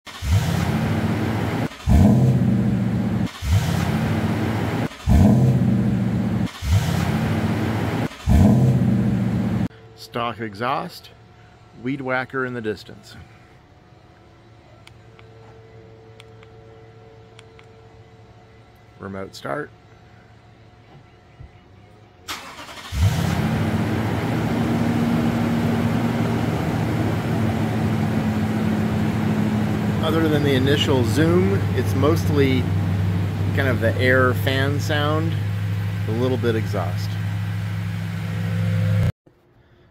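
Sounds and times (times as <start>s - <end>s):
truck engine starting: 0.0s - 9.8s, 22.2s - 39.1s
starter motor cranking: 22.3s - 23.6s.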